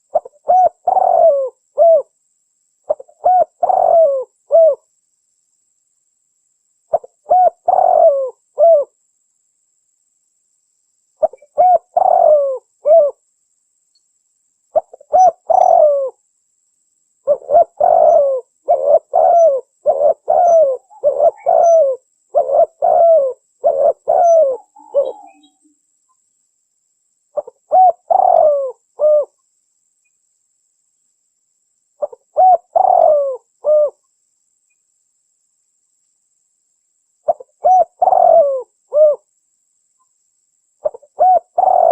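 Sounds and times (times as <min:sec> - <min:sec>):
dove cooing: 0:00.0 - 0:02.1, 0:02.9 - 0:04.8, 0:06.9 - 0:09.0, 0:11.2 - 0:13.2, 0:14.7 - 0:16.2, 0:17.2 - 0:25.6, 0:27.4 - 0:29.4, 0:32.0 - 0:34.0, 0:37.3 - 0:39.3, 0:40.8 - 0:41.9.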